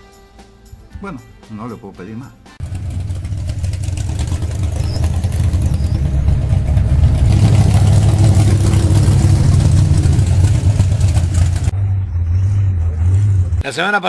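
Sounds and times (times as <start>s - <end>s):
racing car engine high revs: 2.6s - 13.6s.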